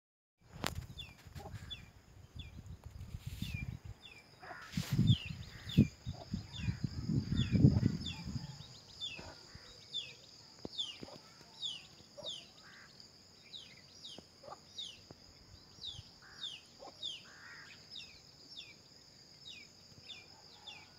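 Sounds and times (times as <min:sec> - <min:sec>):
wind buffeting microphone: 0:00.5 - 0:09.3.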